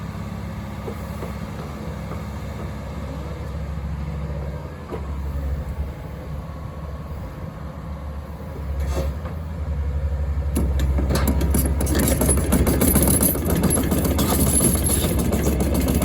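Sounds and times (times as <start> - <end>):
diesel engine rumbling: 0.0 - 16.0
metallic clanks and rattles: 10.6 - 16.0.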